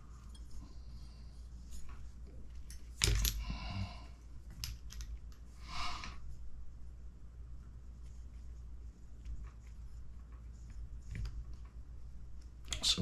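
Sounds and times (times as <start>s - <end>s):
small parts clicking and clattering: 1.7s - 3.6s, 4.5s - 5.5s.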